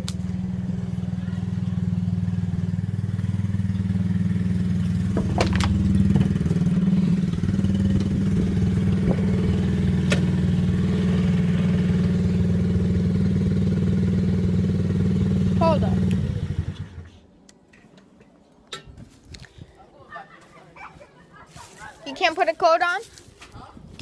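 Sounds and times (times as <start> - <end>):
dirt bike engine idling: 0.0 - 17.3.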